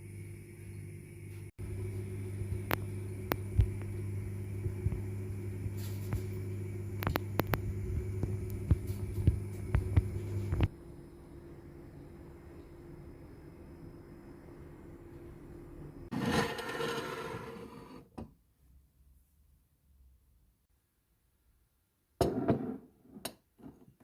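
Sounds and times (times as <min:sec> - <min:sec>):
electrical appliance humming: 0:00.0 - 0:18.3.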